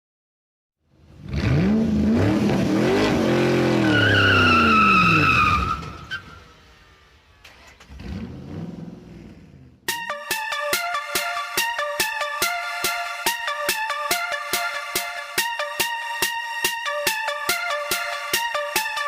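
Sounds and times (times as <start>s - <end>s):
engine revving: 1.0s - 9.9s
tyres squealing: 3.4s - 6.4s.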